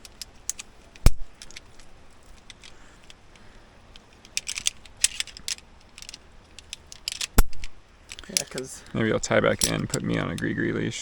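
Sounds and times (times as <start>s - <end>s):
carabiners clinking: 0.0s - 10.6s
sharp metal click: 4.2s - 8.7s.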